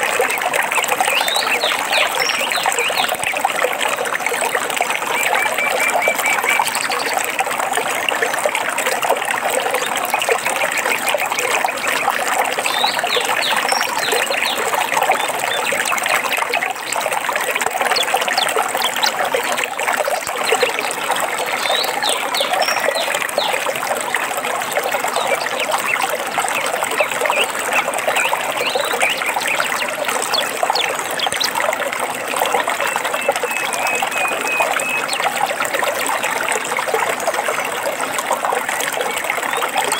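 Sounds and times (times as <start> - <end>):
stream water babbling: 0.0 - 39.9
bird chirps: 32.9 - 35.2.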